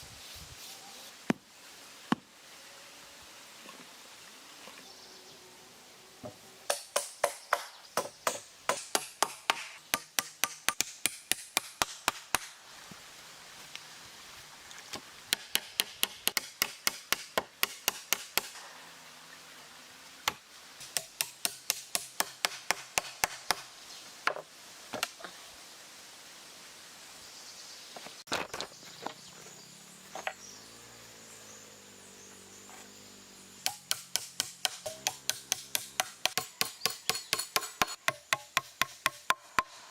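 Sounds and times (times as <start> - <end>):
hammer driving nails into wood: 6.7 - 12.5, 15.3 - 18.6, 33.6 - 39.7.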